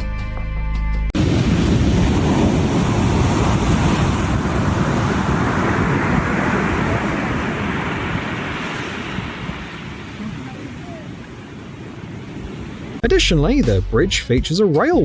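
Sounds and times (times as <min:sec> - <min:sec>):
loud steady rushing noise: 0:01.2 - 0:09.6.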